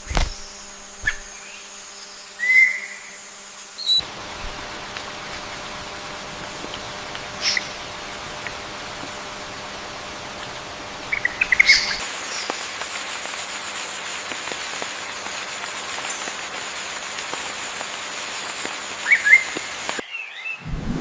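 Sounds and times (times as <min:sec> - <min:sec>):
steady hiss of rain: 0:03.6 - 0:20.0.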